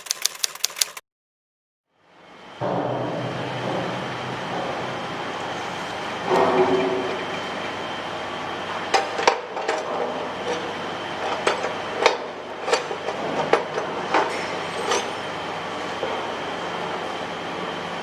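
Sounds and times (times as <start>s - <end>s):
mechanical hum: 1.9s - 18.0s
metallic knocks and clanks: 2.4s - 7.8s.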